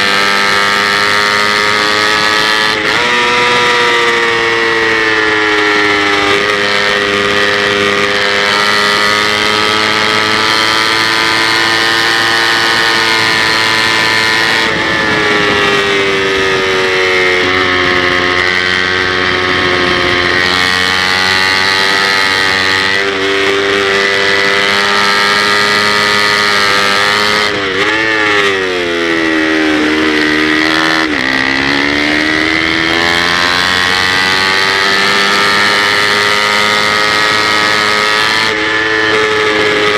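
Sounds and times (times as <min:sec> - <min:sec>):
motorcycle engine at high revs: 0:00.0 - 0:39.9
wind rush: 0:13.0 - 0:25.6.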